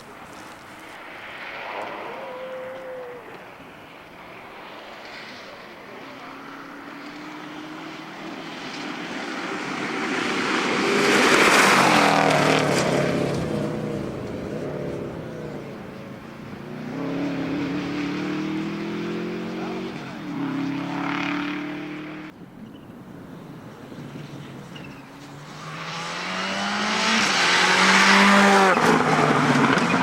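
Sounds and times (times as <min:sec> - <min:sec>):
tyre noise: 0:00.0 - 0:03.7, 0:06.0 - 0:26.0
rally car passing at speed: 0:00.0 - 0:30.0
another car engine: 0:02.8 - 0:30.0.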